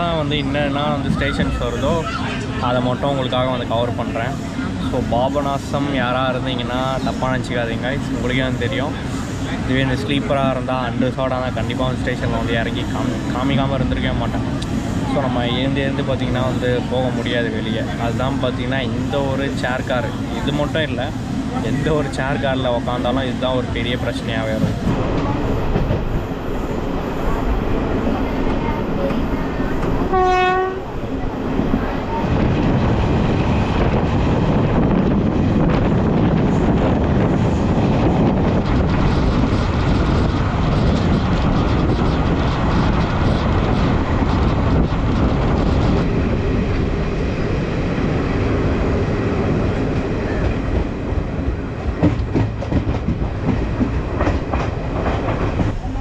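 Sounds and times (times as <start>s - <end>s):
train wheels rumbling on track: 0.0s - 56.0s
wheels clacking over rail joints: 48.8s - 55.9s.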